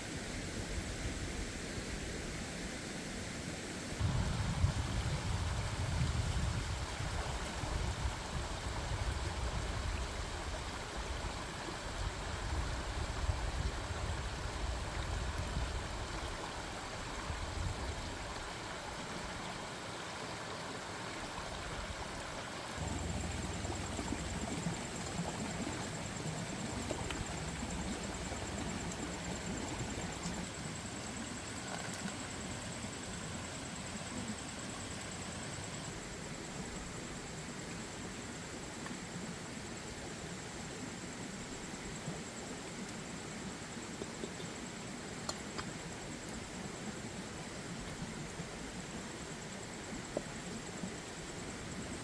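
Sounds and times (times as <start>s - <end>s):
uneven low rumble: 22.8s - 25.8s.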